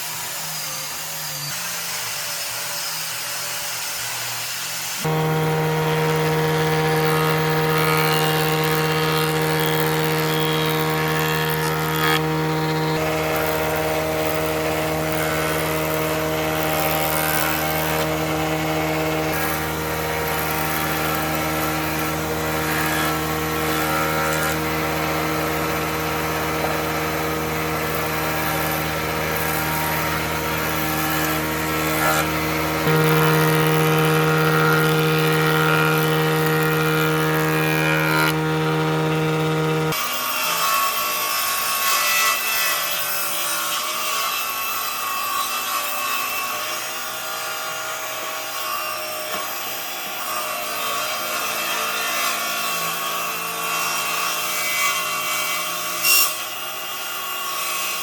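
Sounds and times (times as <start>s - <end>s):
woodworking machine motor running: 5.0s - 40.2s.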